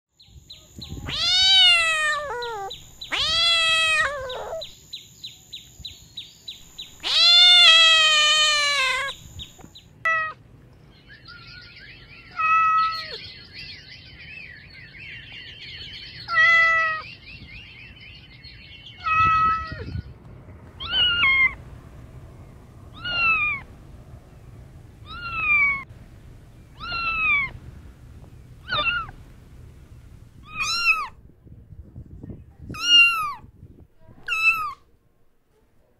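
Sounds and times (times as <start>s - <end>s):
faint high chirping: 0.2s - 10.0s, 22.2s - 29.2s
kitten meowing: 1.0s - 4.6s, 7.0s - 9.2s, 19.0s - 19.8s, 20.8s - 21.6s, 22.9s - 23.7s, 25.0s - 25.9s, 26.8s - 27.6s, 28.6s - 29.2s, 30.4s - 31.2s, 32.8s - 33.4s, 34.2s - 34.8s.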